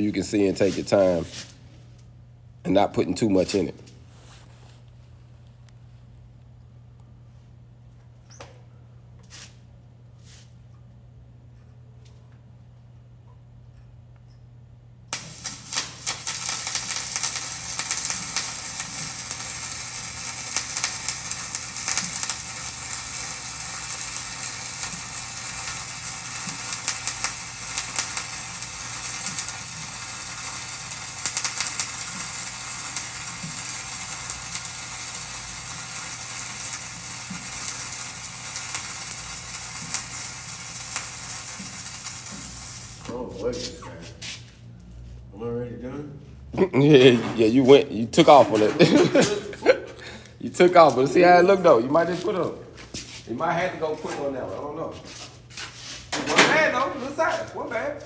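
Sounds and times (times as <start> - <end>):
welding arc crackling: 15.1 - 43.8, 47.7 - 49.6, 50.5 - 52.6.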